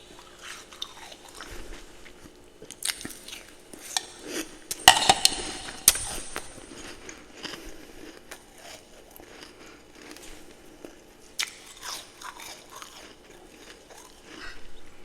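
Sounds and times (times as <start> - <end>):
person crunching ice: 11.4 - 14.4.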